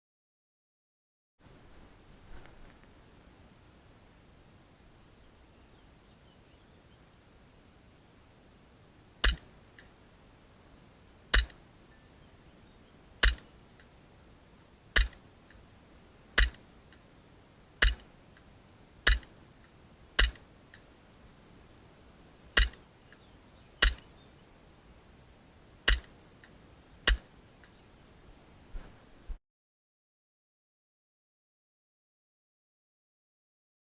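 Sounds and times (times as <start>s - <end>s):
airsoft pistol shots: 9.2s - 9.5s, 11.3s - 11.6s, 13.2s - 13.5s, 16.4s - 16.6s, 17.8s - 18.1s, 22.6s - 22.8s, 25.9s - 26.2s.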